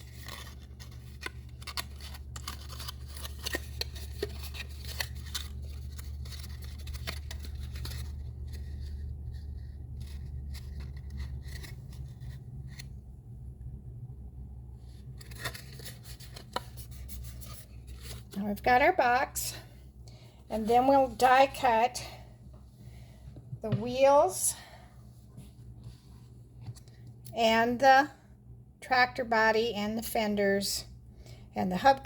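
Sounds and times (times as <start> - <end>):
paper clicks and rustles: 0.0 - 12.9, 15.2 - 18.4
low steady hum: 0.0 - 32.0.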